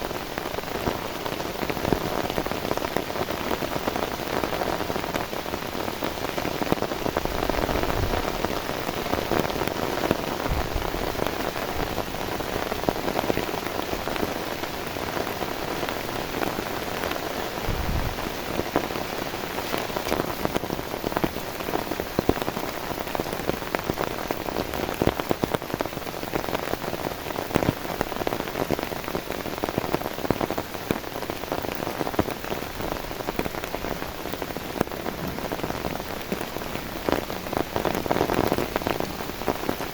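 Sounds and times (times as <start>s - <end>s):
heavy rain with drop hits: 0.0s - 39.9s
low thuds: 10.4s - 11.9s, 17.6s - 18.8s.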